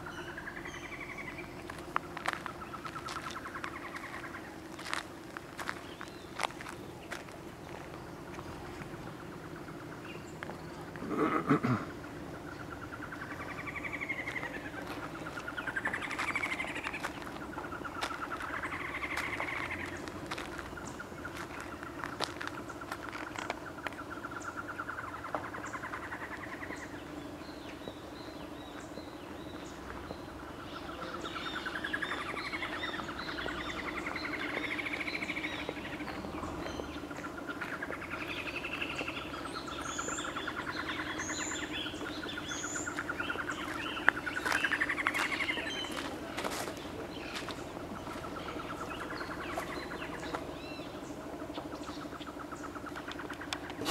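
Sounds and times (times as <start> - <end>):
birds warbling: 0.0 - 53.9
steady low hum: 0.0 - 53.9.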